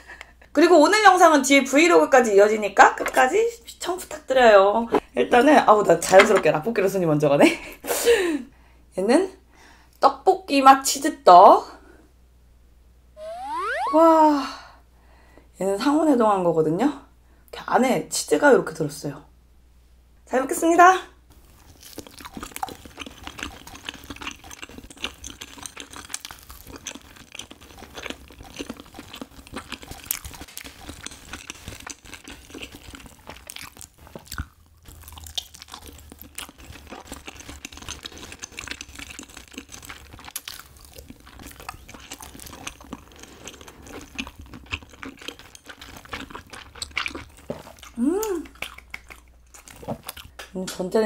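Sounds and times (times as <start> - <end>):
person humming: 13.2 - 14.4, 48.0 - 48.5
close-up chewing sticky food: 21.3 - 50.4.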